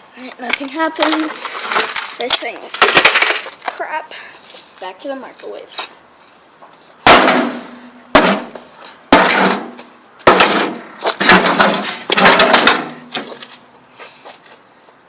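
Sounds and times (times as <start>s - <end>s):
heavy strikes on metal casing: 7.0s - 13.2s.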